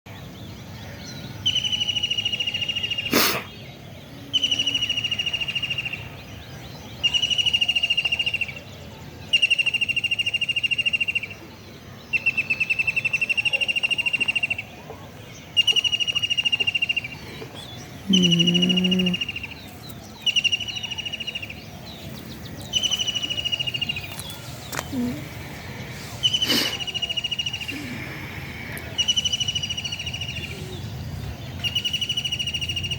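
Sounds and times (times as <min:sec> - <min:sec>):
bird trilling: 0:15.6 - 0:25.3.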